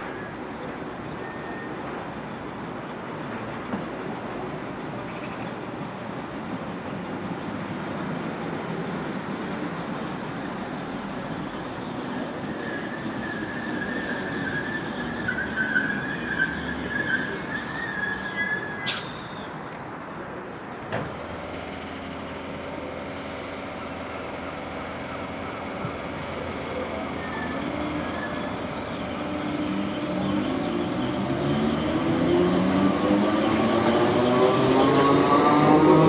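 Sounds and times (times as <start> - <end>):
train brakes squealing: 1.2 - 1.8, 11.3 - 19.7, 26.0 - 32.1.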